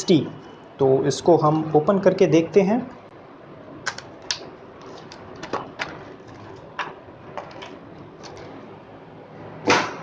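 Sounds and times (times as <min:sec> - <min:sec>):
packaging clicks and crinkles: 0:03.9 - 0:08.6.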